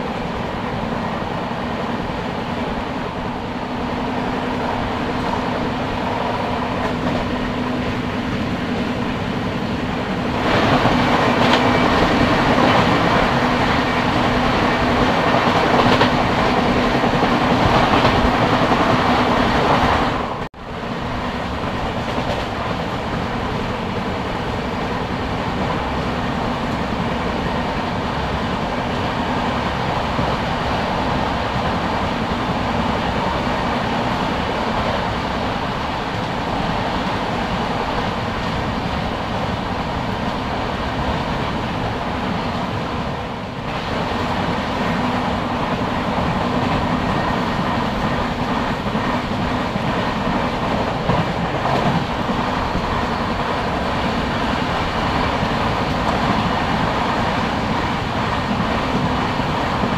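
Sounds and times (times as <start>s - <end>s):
clickety-clack over rail joints: 0.0s - 20.5s, 21.1s - 59.9s
passing train: 0.0s - 59.9s
train wheels rumbling on rails: 0.0s - 59.9s.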